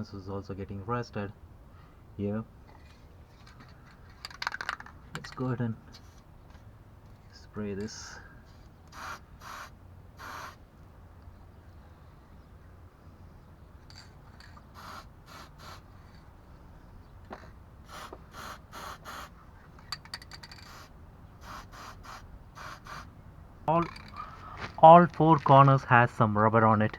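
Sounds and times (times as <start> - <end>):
aerosol can spraying: 8.9 - 10.6, 14.6 - 15.9, 17.9 - 19.3, 20.5 - 23.1.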